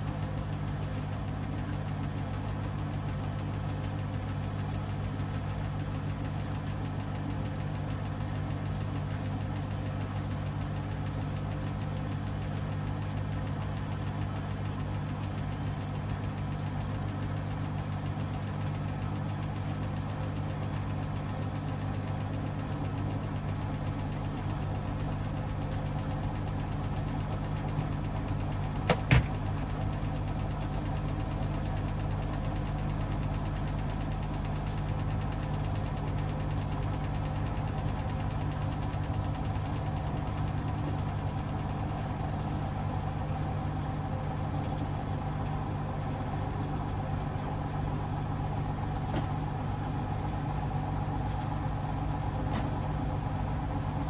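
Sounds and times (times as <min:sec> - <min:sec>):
washing machine motor hum: 0:11.6 - 0:54.0.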